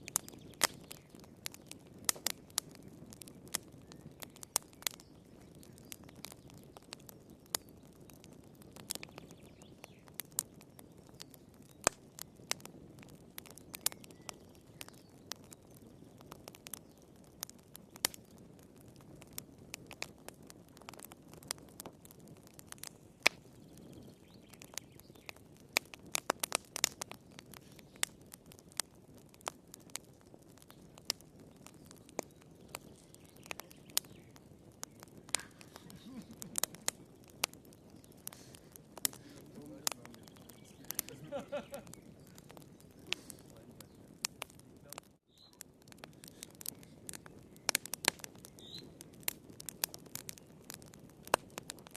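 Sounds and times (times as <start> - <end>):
wood fire crackling: 0.0 - 51.9
hiss of flames: 17.9 - 51.9.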